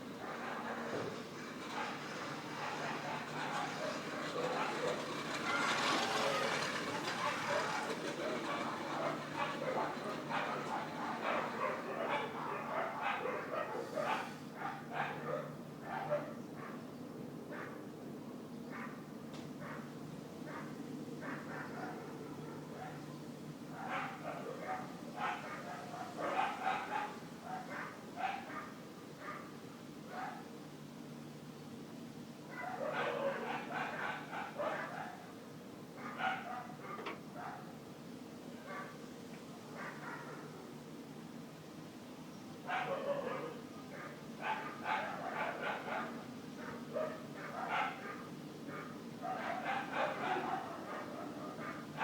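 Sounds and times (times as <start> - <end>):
dog barking: 1.8 - 16.8, 17.5 - 17.8, 18.7 - 19.0, 19.6 - 19.9, 20.5 - 29.5, 30.1 - 30.5, 32.5 - 35.4, 36.0 - 37.8, 38.6 - 39.0, 39.7 - 40.7, 42.6 - 52.0.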